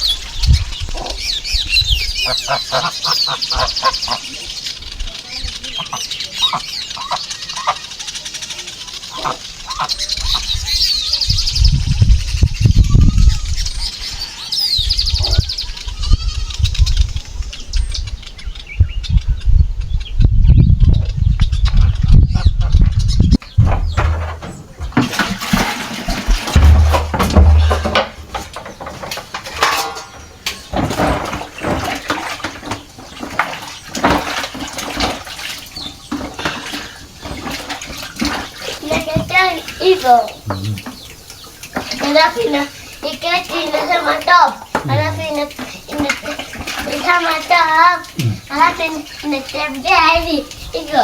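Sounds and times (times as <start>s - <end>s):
small birds chirping: 0.0s - 51.0s
water splashing: 23.4s - 51.0s
dishes clinking: 23.7s - 32.4s.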